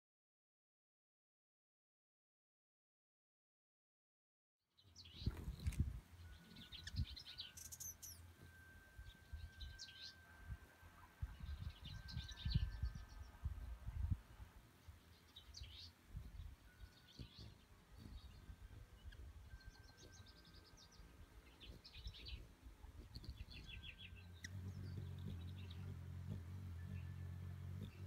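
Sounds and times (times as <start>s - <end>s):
small birds singing trills: 4.7s - 28.0s
steady low hum: 16.0s - 28.0s.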